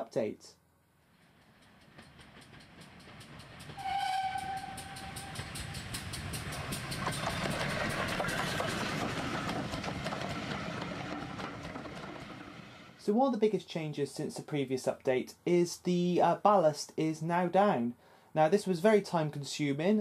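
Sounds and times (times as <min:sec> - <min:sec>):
train clattering past: 0:01.0 - 0:13.0
train whistle: 0:03.8 - 0:05.8.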